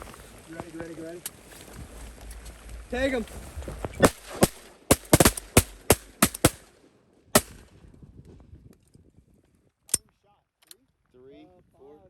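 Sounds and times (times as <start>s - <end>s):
shotgun blasts: 4.0s - 6.7s, 7.4s - 7.6s.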